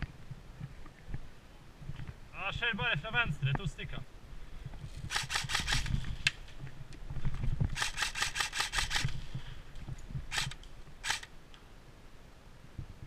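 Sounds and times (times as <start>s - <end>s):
airsoft gun firing: 5.1s - 6.0s, 7.8s - 9.2s, 10.3s - 11.3s.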